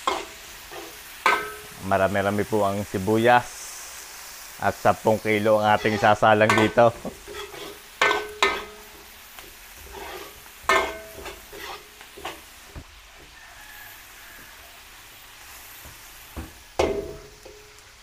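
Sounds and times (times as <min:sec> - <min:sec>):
metal ladle knocking wok: 0:00.0 - 0:01.8, 0:06.5 - 0:09.0, 0:10.6 - 0:11.6, 0:16.4 - 0:17.7
onions sizzling in oil: 0:00.0 - 0:18.0.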